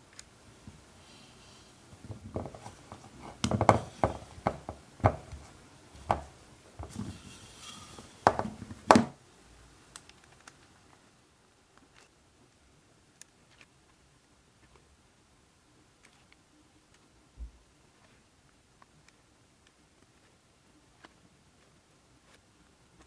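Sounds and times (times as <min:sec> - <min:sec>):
kitchen utensils knocking and clattering: 0:01.9 - 0:09.2.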